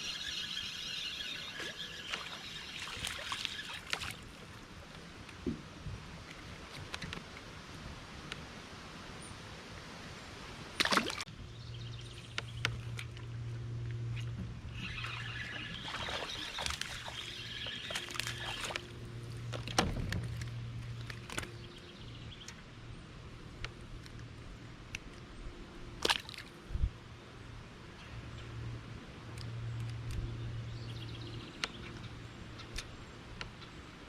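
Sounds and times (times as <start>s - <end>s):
water sloshing around a kayak: 0.1s - 5.2s, 14.1s - 22.4s.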